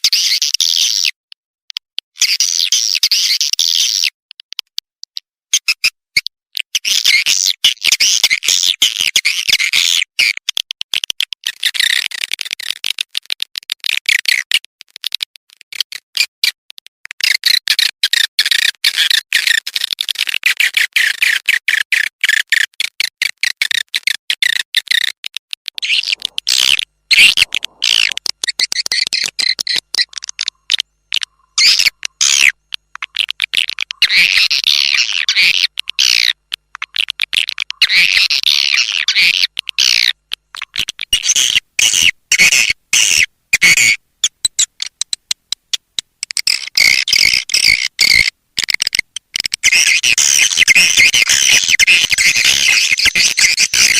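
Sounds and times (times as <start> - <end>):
high twittering bird chirps: 2.2 - 4.1, 25.8 - 36.9, 37.8 - 45.1, 46.3 - 53.9.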